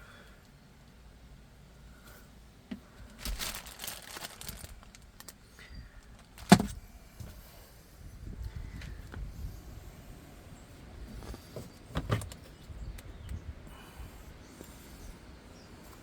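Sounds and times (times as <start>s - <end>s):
handling rustle: 2.1s - 7.5s, 10.8s - 16.0s.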